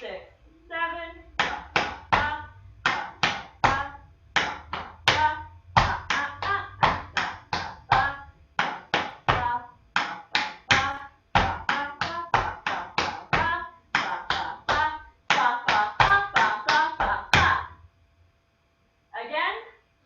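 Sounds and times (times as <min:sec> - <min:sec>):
tap shoes on hard floor: 0:01.4 - 0:17.6.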